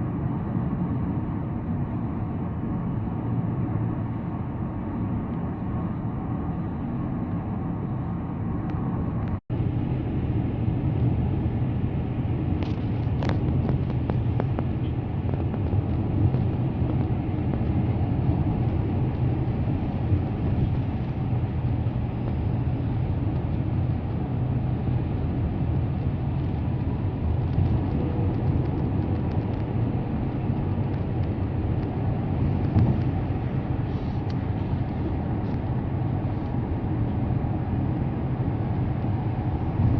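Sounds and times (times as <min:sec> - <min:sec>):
tyres and engine rumble: 0:00.0 - 0:39.9.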